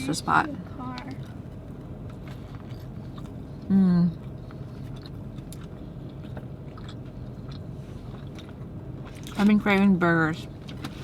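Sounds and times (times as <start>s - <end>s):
person chewing: 2.2s - 9.4s.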